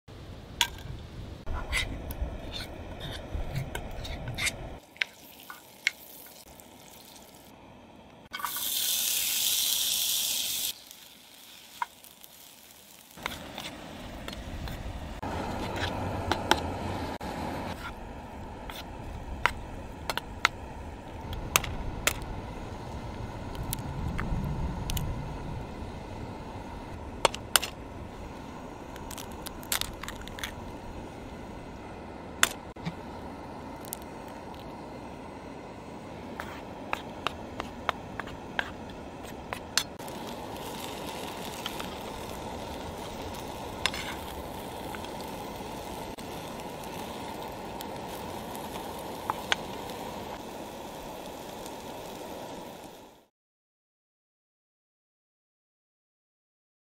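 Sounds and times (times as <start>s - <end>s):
food sizzling in a skillet: 4.8s - 7.5s, 8.3s - 14.8s, 39.5s - 53.3s.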